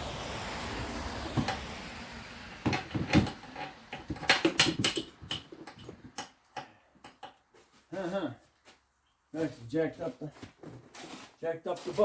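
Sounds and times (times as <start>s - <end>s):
irregular clicks and knocks: 2.6s - 7.5s.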